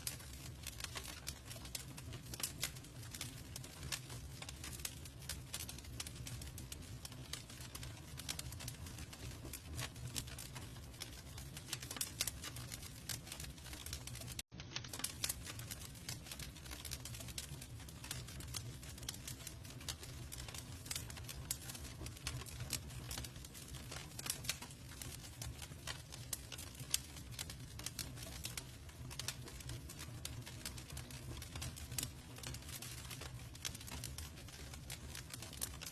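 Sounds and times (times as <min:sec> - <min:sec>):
low rumble of flames: 0:00.0 - 0:35.9
wood crackling and popping: 0:00.0 - 0:35.9.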